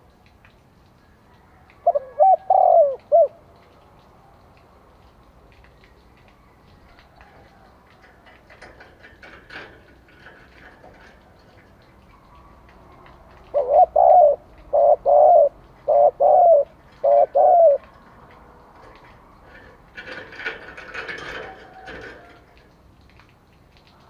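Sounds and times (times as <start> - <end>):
faint clicks: 0.0 - 24.0
dove cooing: 1.4 - 3.7, 6.2 - 22.6.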